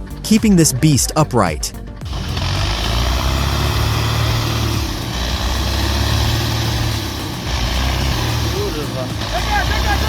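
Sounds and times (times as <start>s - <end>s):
truck diesel engine rumble: 2.0s - 10.0s.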